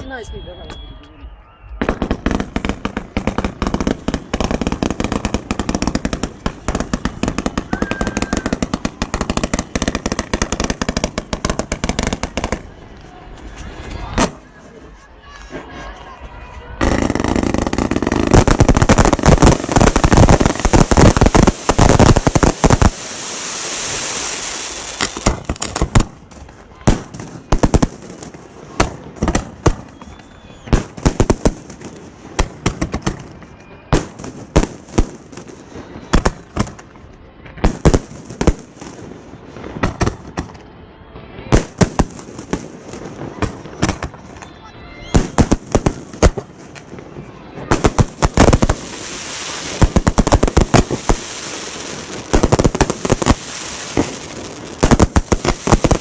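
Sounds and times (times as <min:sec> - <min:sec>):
firework bangs: 0:00.0 - 0:56.0
firework rushing hiss: 0:16.8 - 0:26.4, 0:47.7 - 0:56.0.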